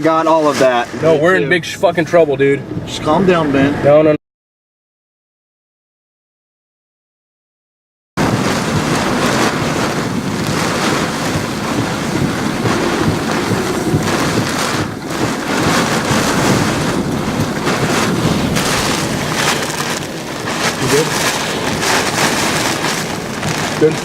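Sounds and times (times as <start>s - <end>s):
strong wind buffeting microphone: 8.2s - 24.0s.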